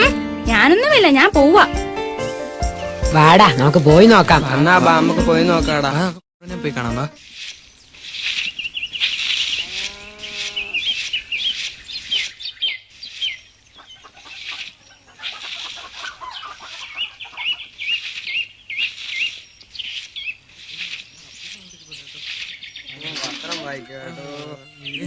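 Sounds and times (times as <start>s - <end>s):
small birds chirping: 7.2s - 25.0s
short low animal call: 9.6s - 11.0s.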